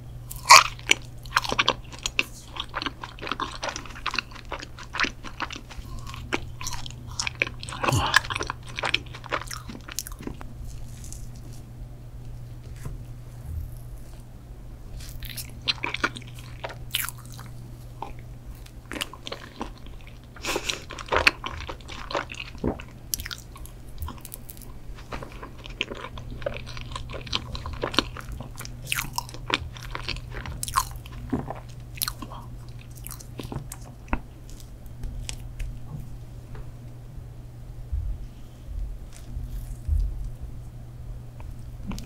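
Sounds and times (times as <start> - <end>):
steady low hum: 0.0 - 42.0
chewing and biting: 0.3 - 11.6, 14.9 - 35.9, 39.0 - 40.4.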